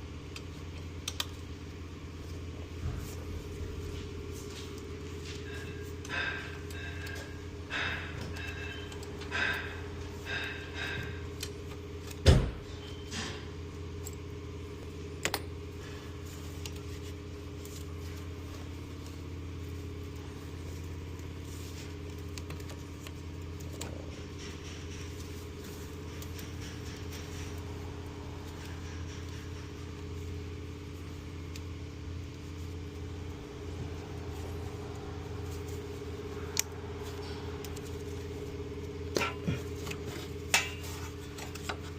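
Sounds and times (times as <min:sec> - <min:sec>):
steady low hum: 0:00.0 - 0:41.9
metal tools clinking: 0:05.4 - 0:11.3.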